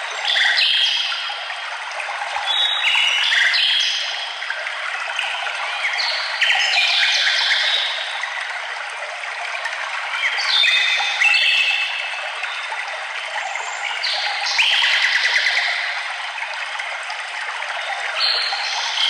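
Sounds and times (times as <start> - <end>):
flowing water rushing: 0.0 - 19.0
songbirds singing: 17.9 - 19.0.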